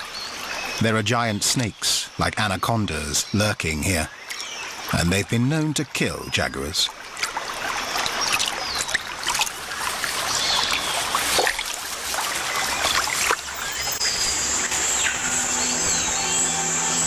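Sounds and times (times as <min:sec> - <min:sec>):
birds chirping: 0:00.0 - 0:06.9, 0:08.1 - 0:11.2, 0:12.2 - 0:17.0
water splashing and trickling: 0:00.0 - 0:17.0
soft background music: 0:13.9 - 0:17.0.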